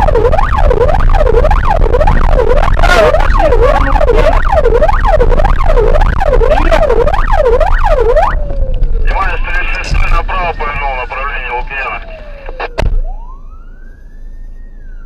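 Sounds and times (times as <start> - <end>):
low road rumble: 0.0 - 15.0
siren in fast yelp: 0.0 - 15.0.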